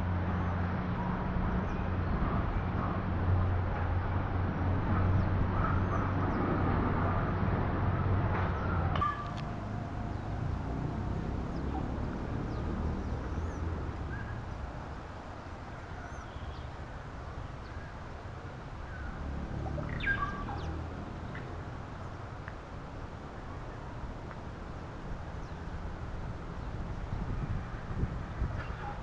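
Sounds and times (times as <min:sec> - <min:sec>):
bird chirps and whistles: 0:19.9 - 0:20.6.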